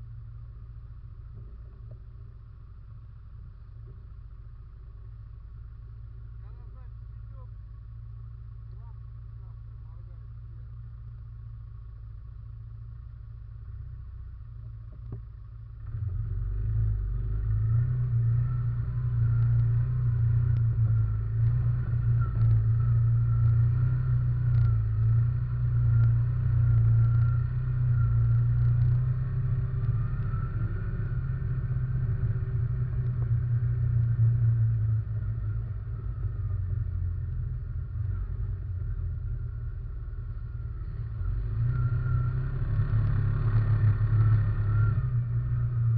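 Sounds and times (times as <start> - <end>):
quad bike engine running: 11.9 - 45.9.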